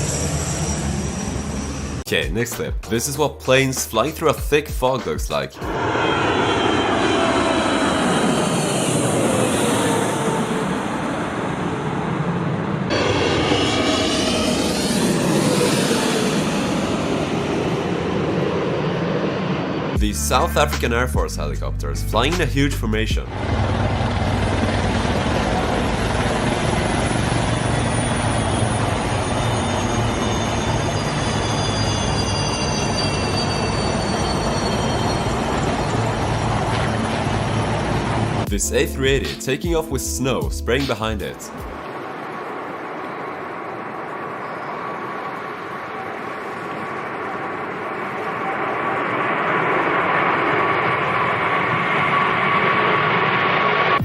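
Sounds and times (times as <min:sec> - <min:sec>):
high turbine whine: 0:00.0 - 0:02.1, 0:05.4 - 0:20.5, 0:23.1 - 0:38.6, 0:41.3 - 0:54.0
plane flying past: 0:00.0 - 0:02.1, 0:05.6 - 0:20.0, 0:23.2 - 0:38.5, 0:41.4 - 0:54.0
helicopter rotor chop: 0:04.9 - 0:21.0, 0:22.3 - 0:31.3, 0:34.6 - 0:38.6, 0:45.6 - 0:54.0.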